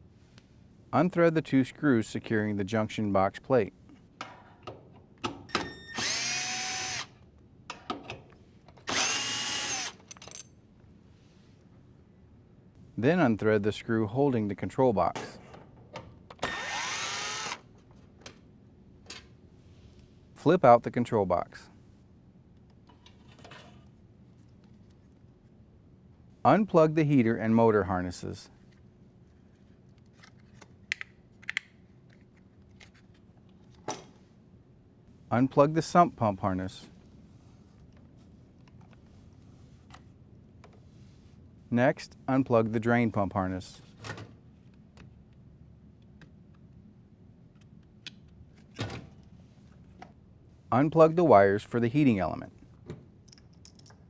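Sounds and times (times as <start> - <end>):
cordless drill whining: 5.6 - 7.2, 8.9 - 10.0, 16.4 - 17.6
drill clicks: 5.9 - 7.2, 8.9 - 10.1, 16.4 - 17.6.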